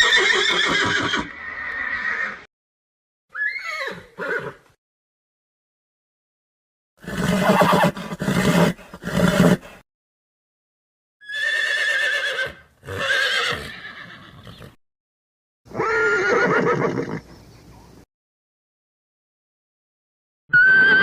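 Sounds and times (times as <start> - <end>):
horse neighing: 0.0 - 2.5, 3.3 - 4.6, 7.0 - 9.8, 11.2 - 14.8, 15.7 - 17.2, 20.5 - 21.0.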